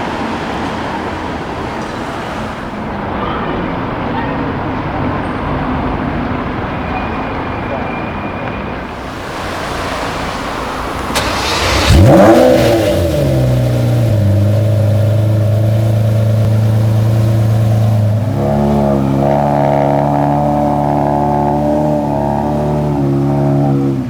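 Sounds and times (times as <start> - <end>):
car engine idling: 8.8 - 24.0
car engine starting and revving: 8.9 - 24.0.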